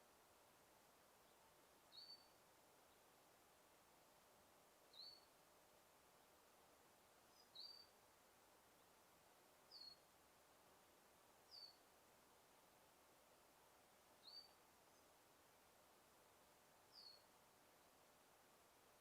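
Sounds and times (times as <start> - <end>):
faint background hiss: 0.0 - 19.0
bird high chirps: 1.9 - 2.3, 4.9 - 5.3, 7.4 - 7.9, 9.7 - 10.0, 11.5 - 11.8, 14.2 - 14.6, 16.9 - 17.2.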